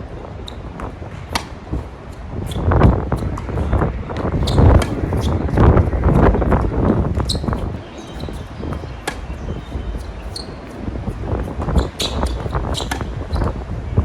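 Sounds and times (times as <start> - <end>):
wind rumble on microphone: 0.0 - 14.0
tennis ball bouncing: 0.4 - 13.6
tennis racket strikes: 1.2 - 2.0, 2.6 - 5.7, 7.3 - 10.8, 11.8 - 13.2.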